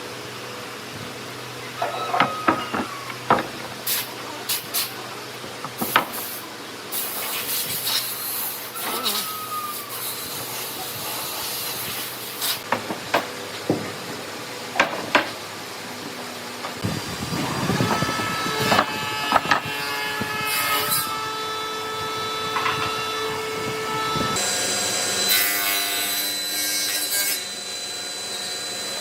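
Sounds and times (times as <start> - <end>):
hissing: 5.7 - 12.6.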